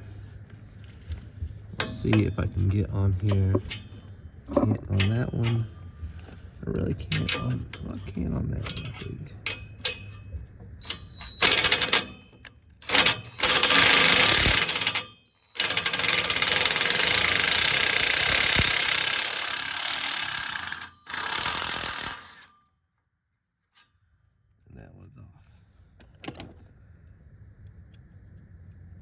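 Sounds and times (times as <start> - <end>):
power wrench rattling: 1.8 - 5.8, 7.0 - 22.6.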